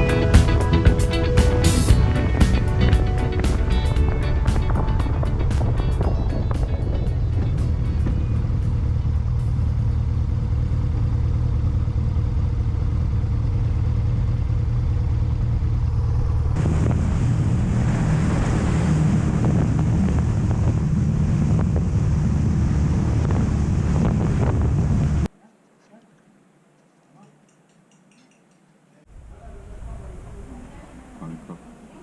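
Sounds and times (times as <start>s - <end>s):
wind noise on microphone: 0.0s - 11.1s, 16.6s - 25.3s
motorcycle engine drone: 0.0s - 25.3s.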